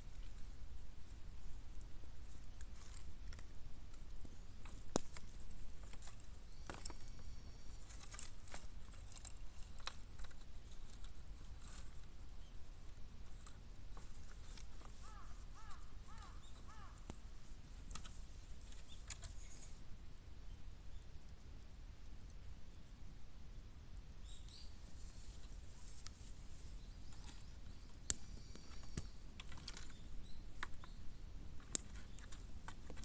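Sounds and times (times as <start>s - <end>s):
bamboo fire crackling and popping: 1.8s - 11.3s, 27.0s - 33.0s.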